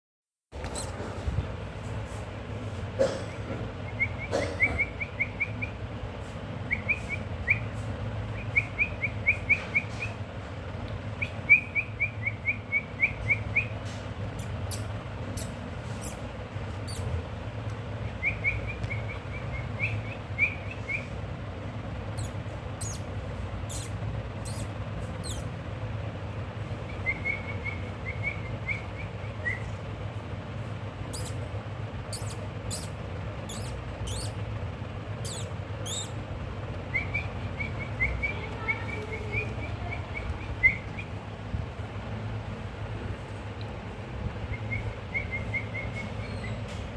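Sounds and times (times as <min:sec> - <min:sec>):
parrot chirping: 0:14.4 - 0:17.1, 0:22.1 - 0:23.1, 0:23.7 - 0:25.5, 0:31.1 - 0:31.5, 0:32.1 - 0:34.4, 0:35.2 - 0:36.2.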